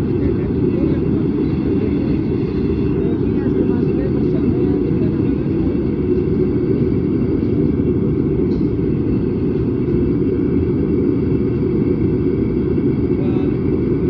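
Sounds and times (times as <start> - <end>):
oil burner rumbling: 0.0 - 14.0.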